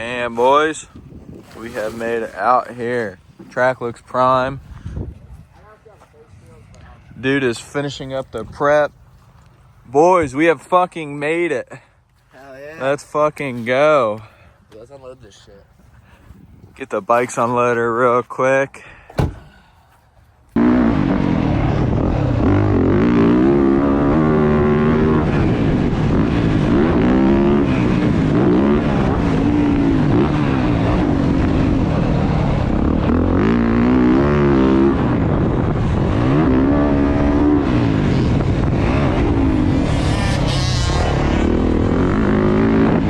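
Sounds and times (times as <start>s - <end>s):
dirt bike engines revving: 0.0s - 0.9s, 20.5s - 43.0s.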